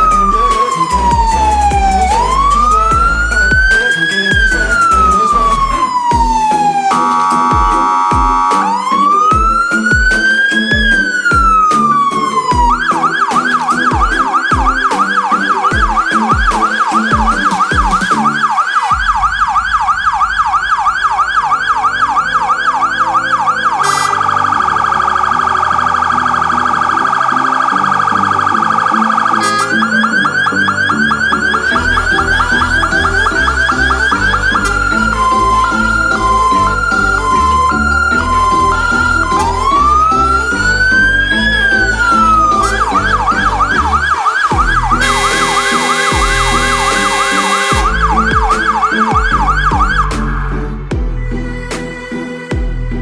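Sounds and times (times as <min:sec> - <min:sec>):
music with steady beat: 0:00.0 - 0:21.2, 0:29.4 - 0:53.0
electronic siren wailing and yelping: 0:05.2 - 0:25.6, 0:26.8 - 0:50.0.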